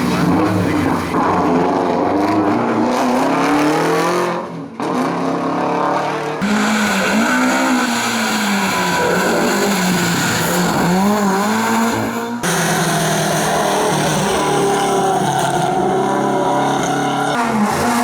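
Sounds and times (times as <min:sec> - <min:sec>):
rally car engines revving: 0:00.0 - 0:18.0.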